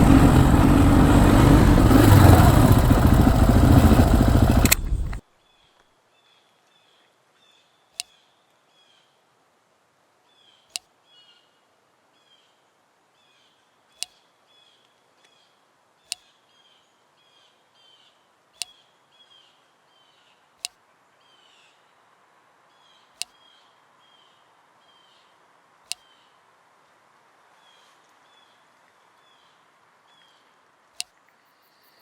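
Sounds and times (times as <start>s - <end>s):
sharp clicks: 0.0s - 5.2s.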